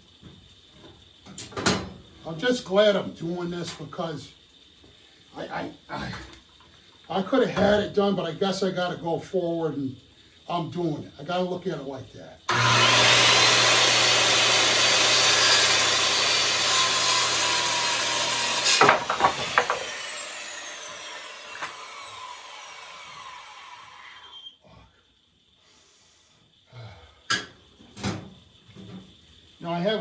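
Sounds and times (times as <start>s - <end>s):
electric saw cutting wood: 12.5s - 24.5s
saw blade winding down: 12.5s - 24.6s
wooden knocks: 18.8s - 19.9s.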